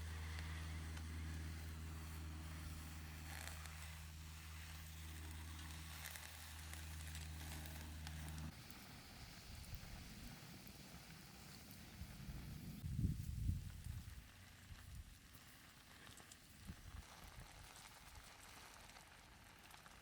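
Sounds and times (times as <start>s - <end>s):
steady low hum: 0.0s - 15.9s
small wood fire crackling: 0.0s - 20.0s.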